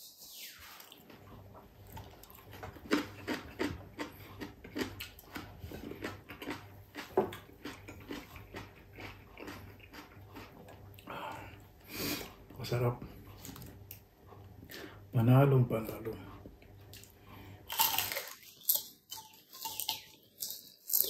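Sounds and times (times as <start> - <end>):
crunchy chewing: 0.8 - 11.6, 16.8 - 21.0.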